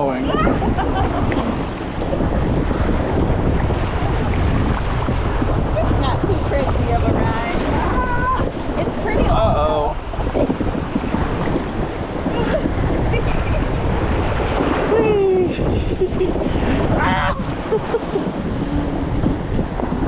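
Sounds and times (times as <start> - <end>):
water rushing around raft: 0.0 - 20.0
wind buffeting microphone: 0.0 - 20.0.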